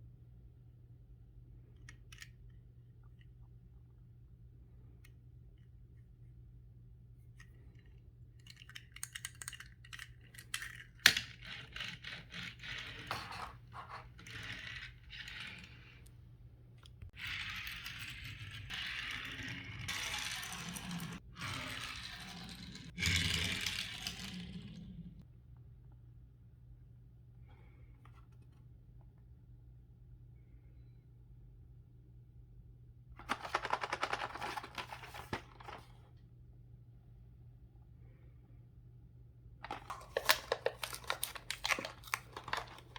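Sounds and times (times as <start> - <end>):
packaging rustling: 33.3 - 35.9, 39.6 - 42.9
plastic and cardboard crinkling: 33.3 - 35.9, 39.6 - 42.9.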